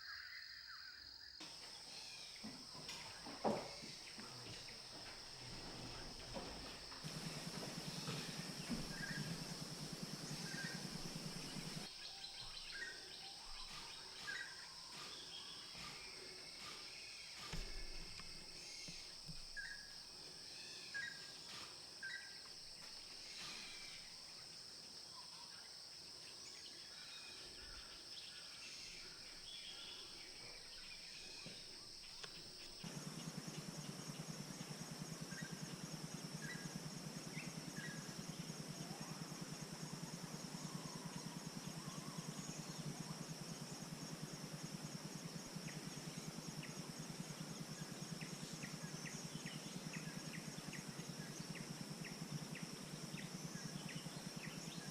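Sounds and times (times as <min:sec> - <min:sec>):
insect chorus: 0:00.0 - 0:54.9
bird chirps: 0:01.4 - 0:19.9
low hum: 0:03.1 - 0:11.9.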